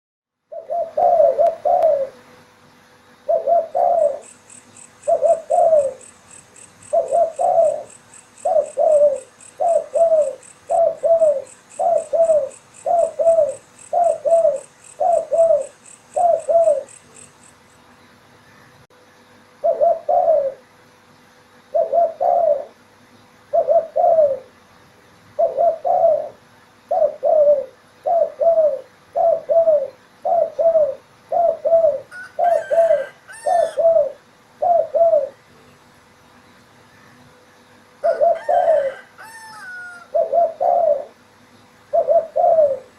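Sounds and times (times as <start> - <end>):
dove cooing: 0.5 - 2.4, 3.2 - 17.5, 19.6 - 20.7, 21.7 - 22.8, 23.5 - 24.6, 25.4 - 35.5, 38.0 - 41.3, 41.9 - 42.9.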